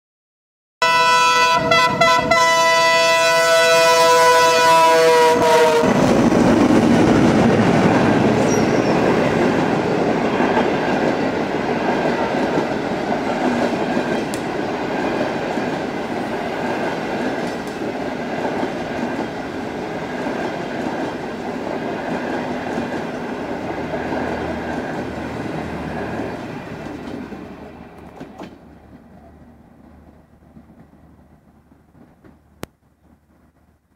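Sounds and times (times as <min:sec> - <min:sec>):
locomotive horn chord: 0:00.8 - 0:06.0
train rolling by: 0:00.8 - 0:33.9.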